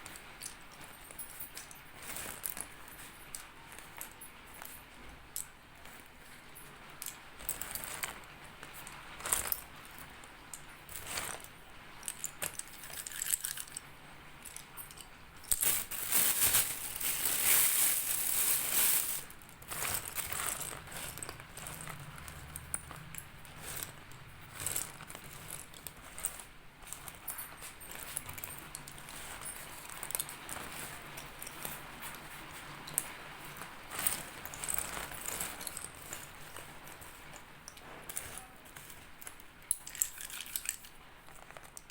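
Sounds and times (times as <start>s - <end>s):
slate pencils crunching: 15.5s - 27.2s.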